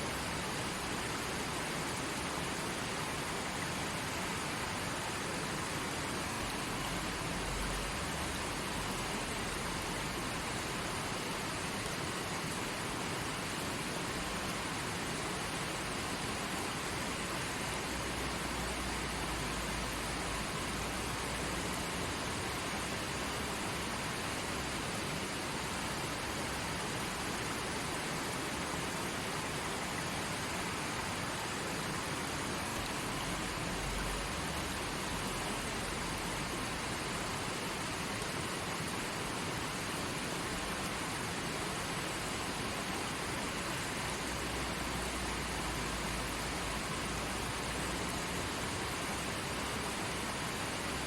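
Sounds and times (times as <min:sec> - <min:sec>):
creek water flowing: 0:00.0 - 0:51.0.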